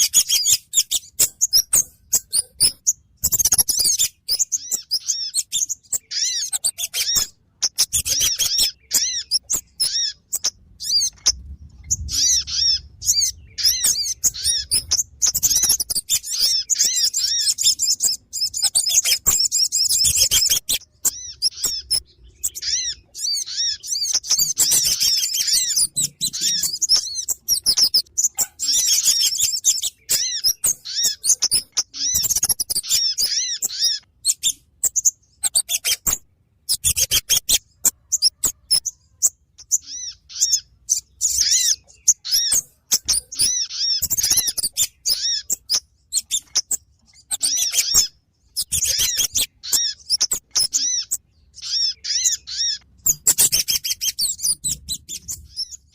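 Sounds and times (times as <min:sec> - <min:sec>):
high-pitched bird chirping: 0:00.0 - 0:55.9.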